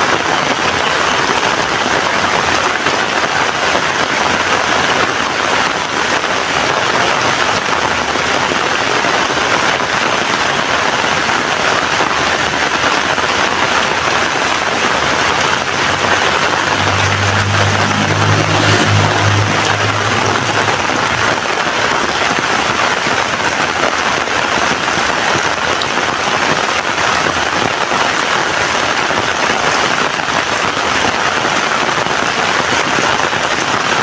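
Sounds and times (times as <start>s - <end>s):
heavy rain falling: 0.0s - 34.0s
low vehicle engine hum: 13.6s - 23.4s.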